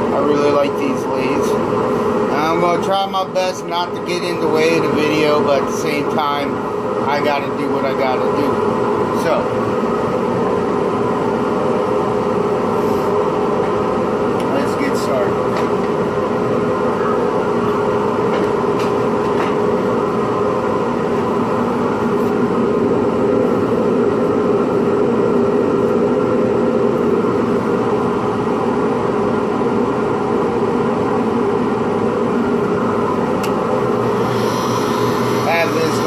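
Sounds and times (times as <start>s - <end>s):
dust vacuum running: 0.0s - 36.0s
wood lathe spinning: 33.7s - 36.0s.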